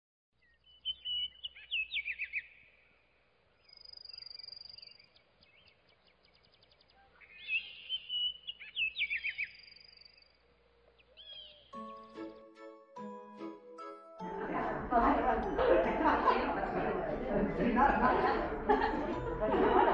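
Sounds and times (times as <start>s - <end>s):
songbird whistled song: 0.4s - 2.9s, 3.6s - 13.9s.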